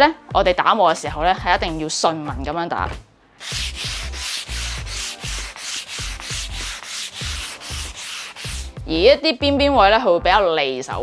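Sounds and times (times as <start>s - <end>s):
sandpaper rubbing on plywood: 3.4s - 8.8s.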